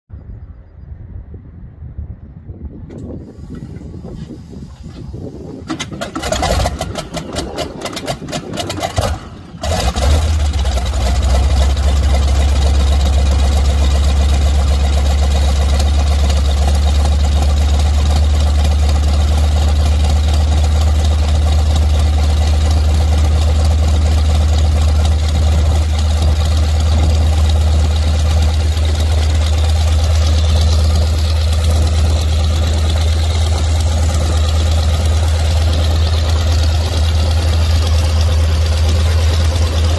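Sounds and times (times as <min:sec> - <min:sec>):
radial engine starting and idling: 0:02.9 - 0:39.9.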